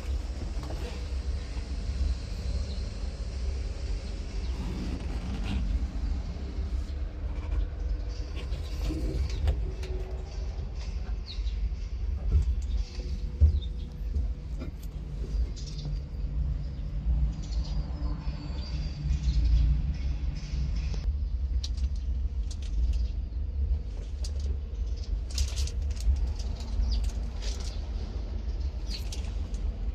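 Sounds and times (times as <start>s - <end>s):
diesel tractor engine rumbling: 0.0s - 29.9s
light clicks and rattles: 20.9s - 28.0s.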